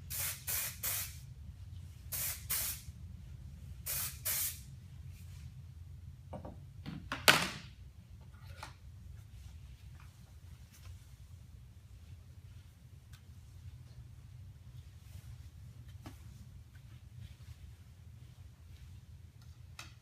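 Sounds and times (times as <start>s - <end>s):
aerosol spray hissing: 0.1s - 1.2s, 2.1s - 2.9s, 3.8s - 4.7s.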